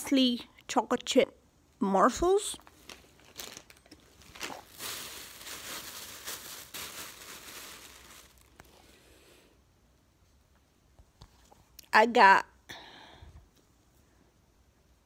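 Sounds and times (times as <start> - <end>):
plastic packaging crinkling: 2.6 - 8.8.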